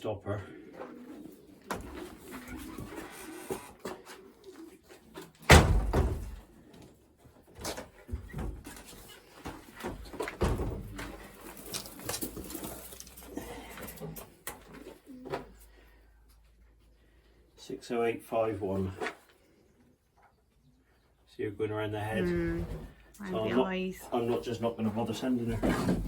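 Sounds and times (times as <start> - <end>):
pigeons cooing: 0.4 - 5.3, 10.9 - 16.2.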